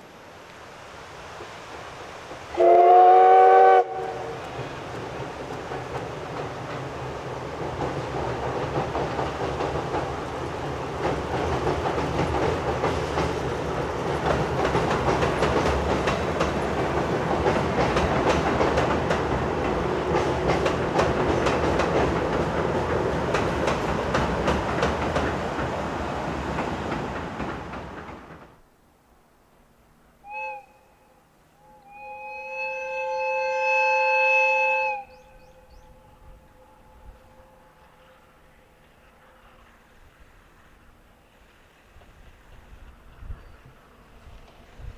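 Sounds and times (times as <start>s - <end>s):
train wheels clattering: 3.8s - 28.6s.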